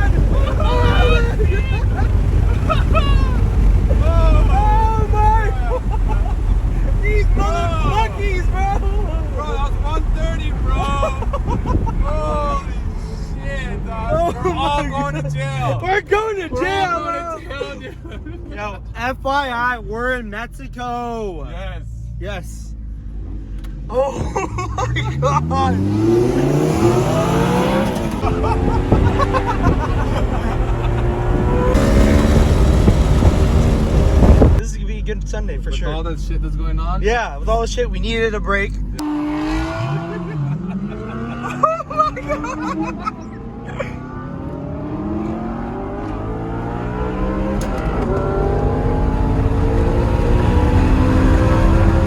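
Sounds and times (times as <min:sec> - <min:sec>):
sports car engine accelerating: 0:00.0 - 0:17.3, 0:21.9 - 0:34.6, 0:38.0 - 0:52.0.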